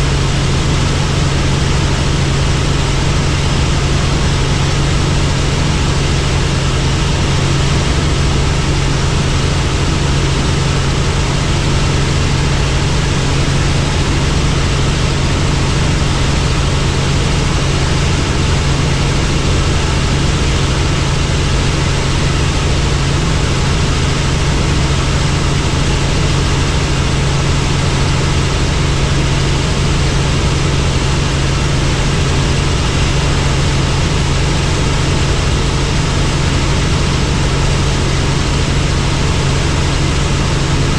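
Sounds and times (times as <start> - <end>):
helicopter engine and rotor noise: 0.0 - 40.9.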